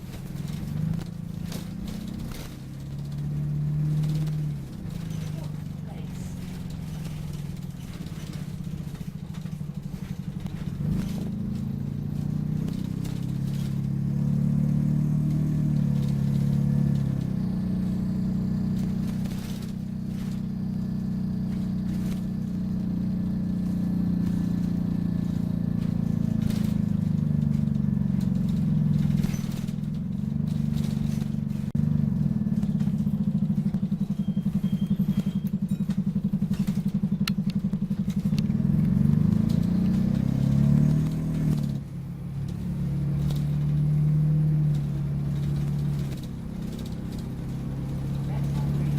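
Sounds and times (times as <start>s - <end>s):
bodywork rattling and knocking: 0.0s - 48.9s
bus diesel engine running: 0.0s - 48.9s.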